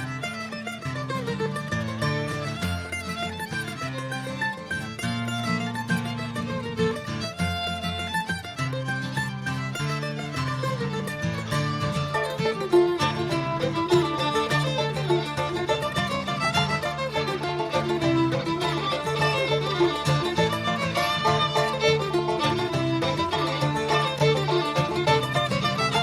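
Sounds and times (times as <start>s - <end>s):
banjo: 0.0s - 26.0s
fiddle melody: 0.0s - 26.0s
mandolin: 0.0s - 26.0s
strummed guitar: 0.0s - 26.0s.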